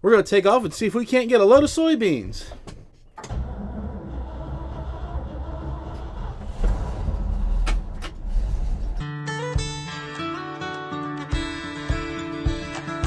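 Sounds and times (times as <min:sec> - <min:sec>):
truck engine and road rumble: 0:03.2 - 0:09.0
background music: 0:03.4 - 0:13.0.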